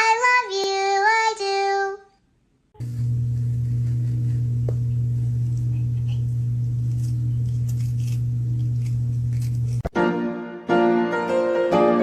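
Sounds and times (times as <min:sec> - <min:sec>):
loud low hum: 0:02.8 - 0:09.9.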